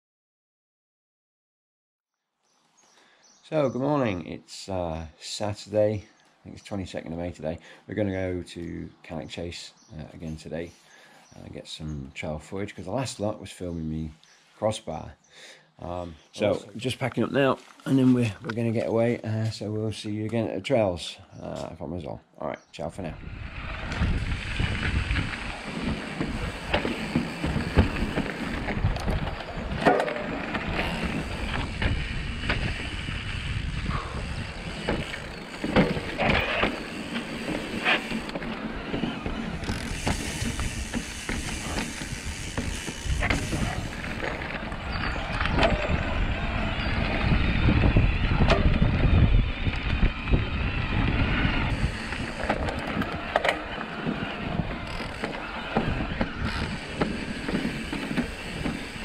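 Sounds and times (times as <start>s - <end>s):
wind rushing on microphone: 23.0s - 59.0s
bike tyres on rough trail: 23.2s - 59.0s
bike knocks and rattles: 24.0s - 46.1s, 51.7s - 59.0s.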